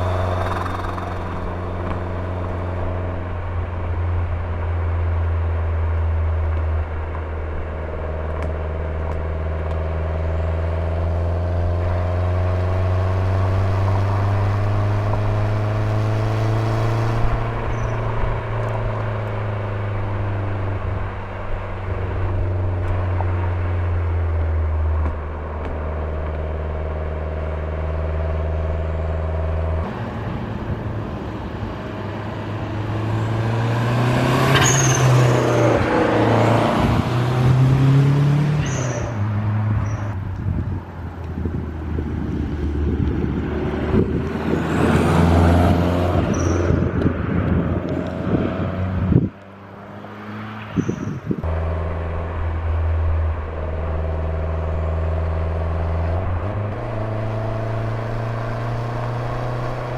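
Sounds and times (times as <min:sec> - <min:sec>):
car engine running: 0:00.0 - 0:29.9, 0:51.5 - 0:59.9.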